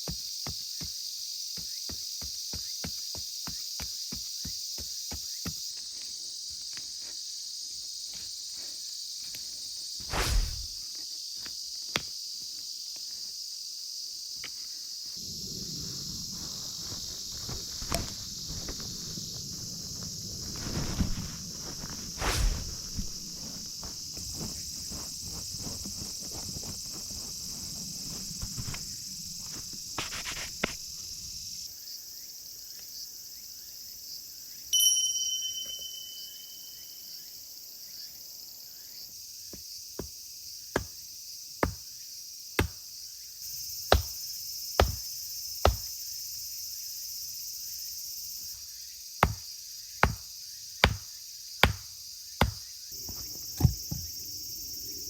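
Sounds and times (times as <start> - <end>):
insects chirring: 0.0 - 55.0
ringing ping: 34.8 - 37.0.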